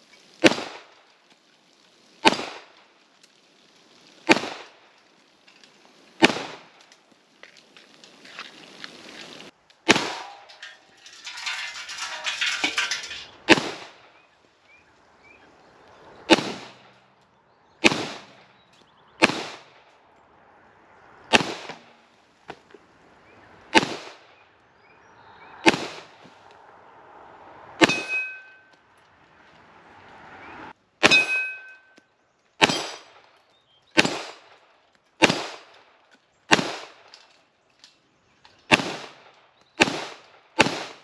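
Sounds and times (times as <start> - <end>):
pistol shots: 0.4 - 0.9, 2.2 - 2.7, 4.3 - 4.8, 6.2 - 6.7, 9.8 - 10.6, 13.5 - 14.0, 16.3 - 16.9, 17.8 - 18.4, 19.2 - 19.8, 21.3 - 21.9, 23.7 - 24.3, 25.6 - 26.1, 27.8 - 28.5, 32.6 - 33.2, 34.0 - 34.5, 35.2 - 35.7, 36.5 - 37.0, 38.7 - 39.2, 39.8 - 41.0
short metallic ring: 27.8 - 28.8, 31.1 - 32.0.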